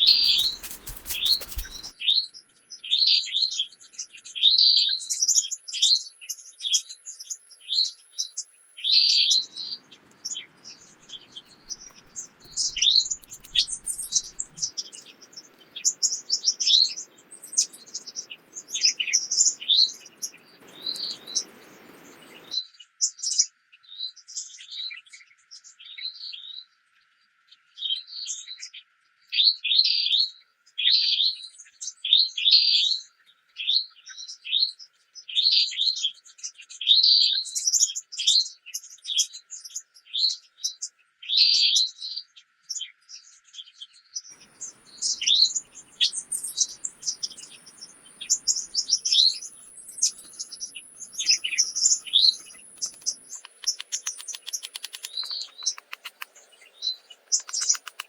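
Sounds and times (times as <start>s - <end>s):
songbirds chirping and singing: 0.0s - 2.0s, 6.3s - 22.6s, 44.3s - 58.0s.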